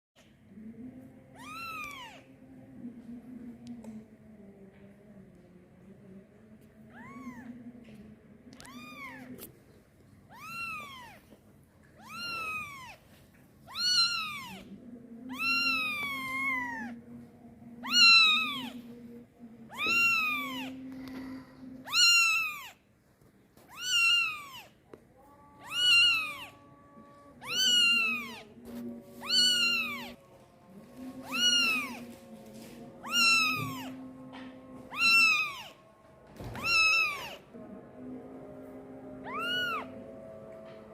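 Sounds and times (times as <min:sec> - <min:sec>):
kitten meowing loudly: 0:01.4 - 0:02.2, 0:06.9 - 0:07.5, 0:08.6 - 0:09.4, 0:10.3 - 0:11.2, 0:12.0 - 0:13.0, 0:13.7 - 0:14.6, 0:15.3 - 0:16.9, 0:17.8 - 0:18.8, 0:19.7 - 0:20.8, 0:21.8 - 0:22.8, 0:23.7 - 0:24.7, 0:25.6 - 0:26.6, 0:27.4 - 0:28.4, 0:29.2 - 0:30.2, 0:31.2 - 0:32.0, 0:33.0 - 0:34.0, 0:34.9 - 0:35.8, 0:36.4 - 0:37.4, 0:39.2 - 0:39.9.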